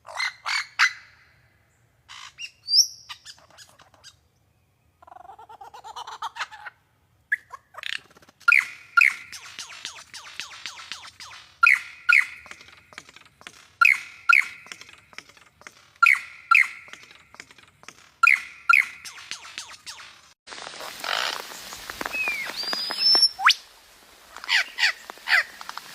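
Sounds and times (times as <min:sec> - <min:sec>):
faint rapid clicking: 0:09.3 - 0:18.2, 0:24.3 - 0:25.9.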